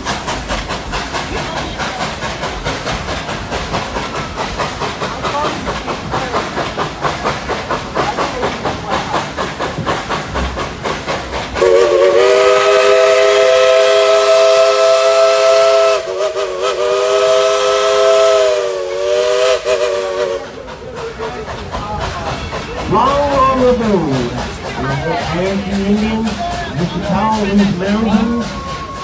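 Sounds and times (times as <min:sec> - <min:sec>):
three-chime steam whistle: 0:11.6 - 0:20.4, 0:28.1 - 0:29.0.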